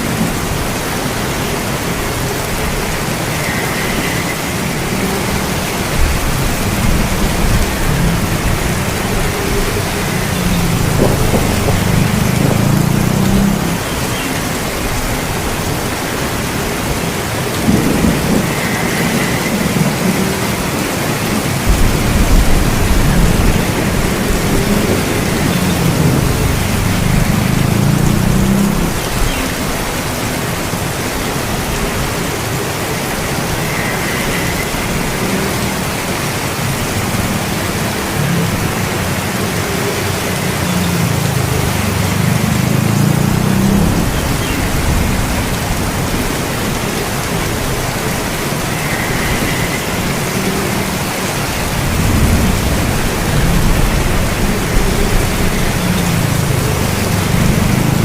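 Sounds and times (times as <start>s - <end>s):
heavy rainfall: 0.0s - 58.0s
low rolling thunder: 4.2s - 30.2s, 42.3s - 58.0s.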